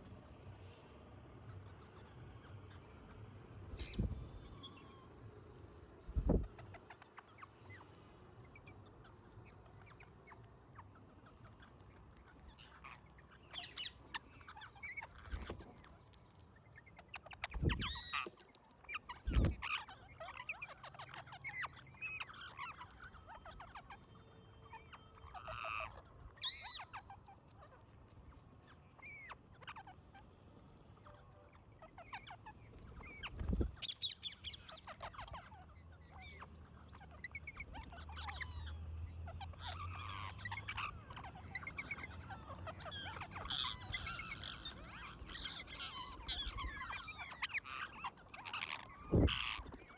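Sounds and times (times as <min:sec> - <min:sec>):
parrots squawking and chattering: 0:00.3 - 0:49.9.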